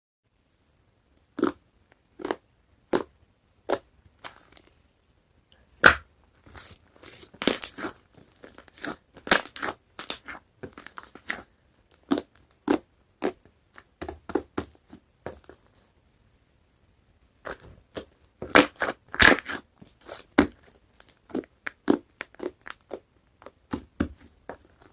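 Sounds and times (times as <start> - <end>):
slime squishing and popping: 17.5 - 24.6.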